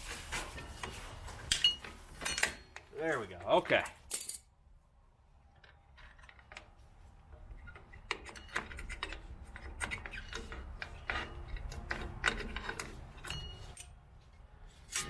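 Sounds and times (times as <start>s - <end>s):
metallic clicks and scrapes of tools: 7.4s - 14.0s, 14.6s - 15.0s.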